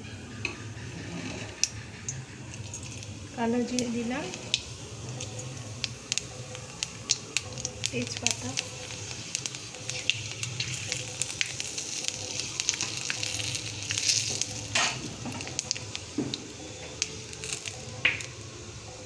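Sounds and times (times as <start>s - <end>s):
spices sizzling in hot oil: 0.5s - 19.0s
sharp crackles: 3.8s - 16.0s.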